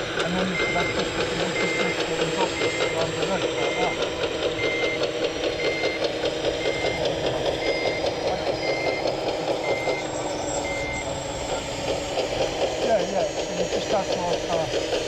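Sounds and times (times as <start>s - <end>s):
mechanical whir of machinery: 0.0s - 15.0s
reversing beeper: 0.3s - 11.9s.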